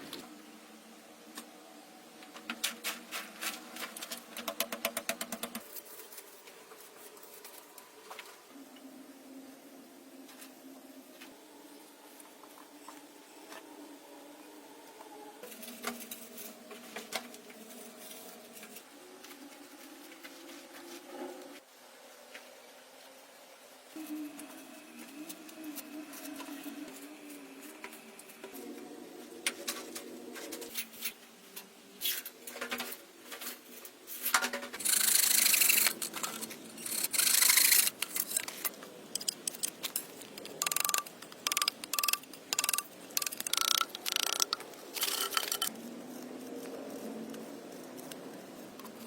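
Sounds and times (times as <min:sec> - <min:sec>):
faint steady hum: 0:00.0 - 0:49.0
scraping and rubbing: 0:33.5 - 0:46.1.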